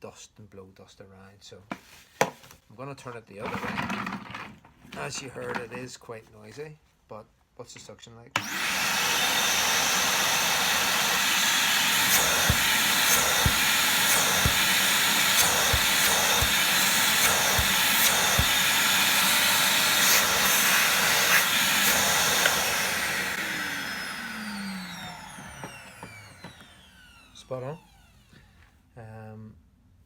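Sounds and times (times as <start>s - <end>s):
motor winding down whine: 8.4s - 28.5s
vacuum cleaner running: 8.4s - 28.7s.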